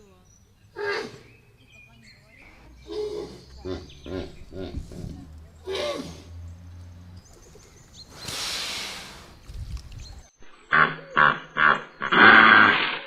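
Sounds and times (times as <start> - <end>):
large animal breathy exhale: 8.1 - 9.5.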